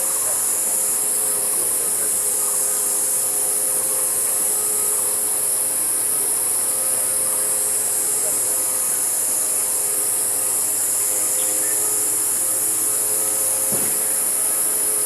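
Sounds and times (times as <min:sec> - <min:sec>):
insect chorus: 0:00.0 - 0:15.0.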